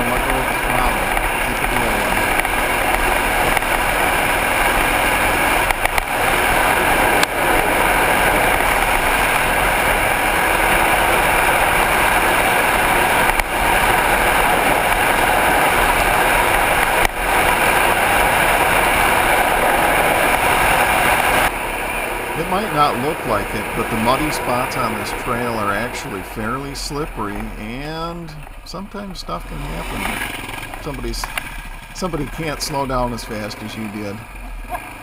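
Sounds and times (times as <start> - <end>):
dirt bike engine running: 0.0 - 35.0.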